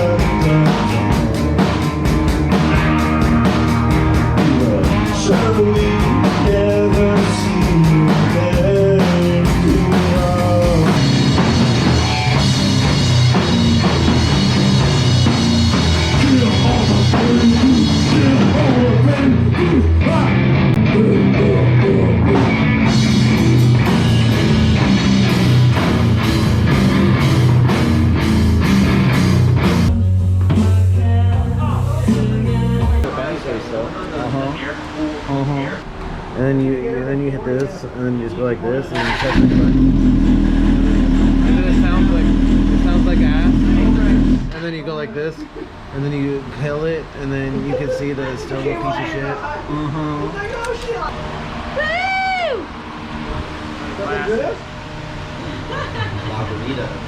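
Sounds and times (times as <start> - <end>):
person singing: 0.0 - 1.1, 4.4 - 11.0, 16.1 - 22.6, 29.9 - 33.1, 49.7 - 50.3
drum kit: 0.0 - 33.4, 39.2 - 44.6
guitar: 0.0 - 36.8, 38.4 - 57.0.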